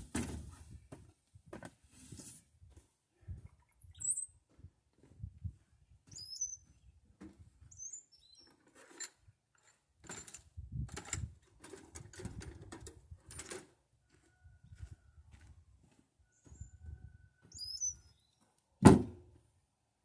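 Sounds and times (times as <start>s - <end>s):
small birds chirping: 3.4s - 4.4s, 6.0s - 7.0s, 7.7s - 8.5s, 17.5s - 18.4s.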